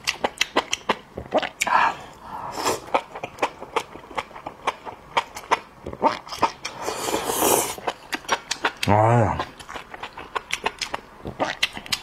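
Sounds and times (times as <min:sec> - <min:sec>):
wet chewing mouth clicks: 0:00.0 - 0:01.7, 0:07.4 - 0:12.0
sucking slurp: 0:06.7 - 0:07.8.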